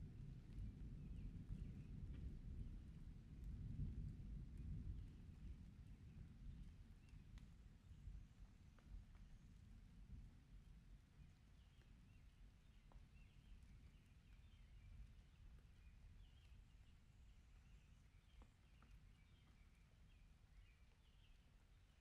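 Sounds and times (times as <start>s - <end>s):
soft ticks: 6.6s - 7.6s
small birds chirping: 11.4s - 22.0s.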